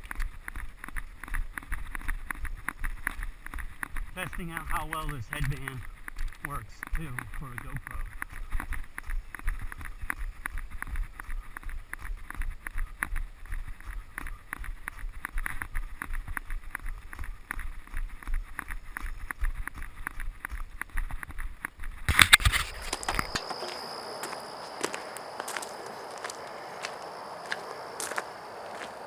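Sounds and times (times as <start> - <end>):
scuffing burst: 22.1 - 29.0
jogging footsteps on dirt: 22.4 - 29.0.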